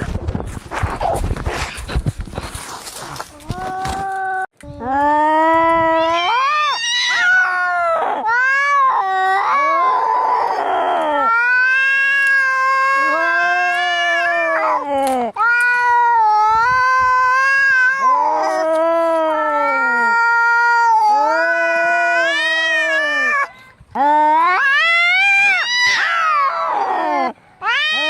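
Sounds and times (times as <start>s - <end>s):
cats yowling: 5.9s - 23.5s, 24.3s - 28.0s.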